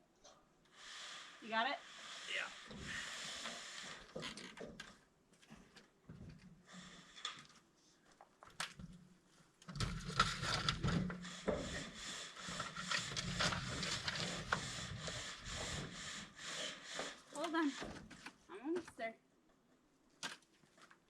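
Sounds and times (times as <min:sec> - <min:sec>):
rhythmic scraping against wood: 0:00.8 - 0:04.8, 0:09.8 - 0:19.0.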